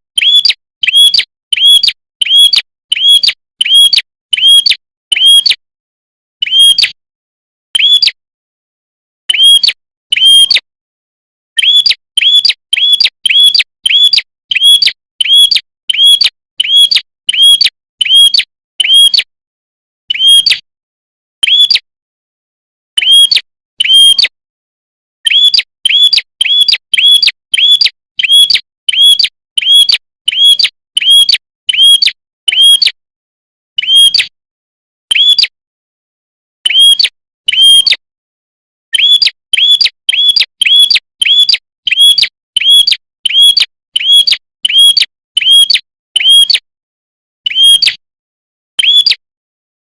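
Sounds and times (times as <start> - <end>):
high bird chirp: 0.2 - 5.6, 6.4 - 7.0, 7.7 - 8.2, 9.3 - 10.7, 11.6 - 19.3, 20.1 - 20.7, 21.4 - 21.9, 23.0 - 24.4, 25.2 - 33.0, 33.8 - 34.3, 35.1 - 35.6, 36.6 - 38.0, 38.9 - 46.6, 47.5 - 48.0, 48.8 - 49.2.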